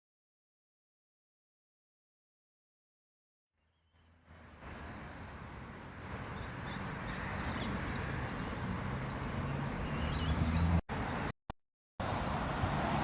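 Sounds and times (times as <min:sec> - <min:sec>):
birds chirping: 0:06.1 - 0:11.3.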